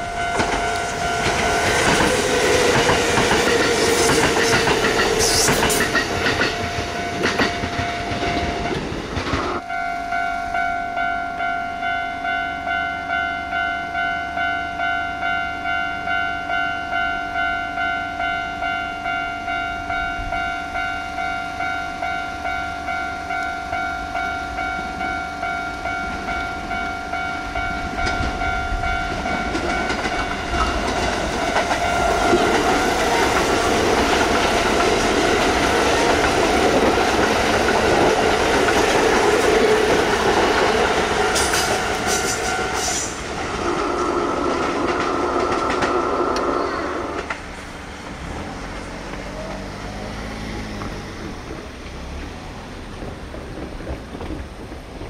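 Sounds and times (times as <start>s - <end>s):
train wheel clatter: 0.0s - 9.6s, 27.6s - 49.5s, 50.6s - 55.0s
approaching train rumble: 0.0s - 55.0s.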